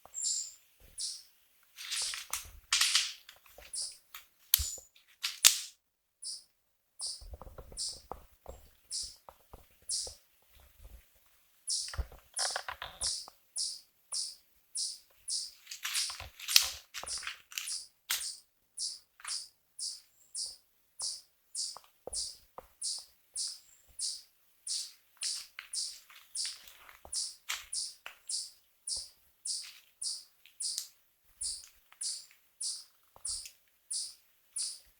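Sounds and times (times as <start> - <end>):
small animal chirping: 0.0 - 1.3, 3.7 - 4.0, 6.2 - 8.1, 8.9 - 9.2, 9.9 - 10.2, 11.7 - 16.2, 17.0 - 34.9
rustling: 1.6 - 5.7, 15.5 - 18.3, 24.9 - 28.3, 29.6 - 30.6.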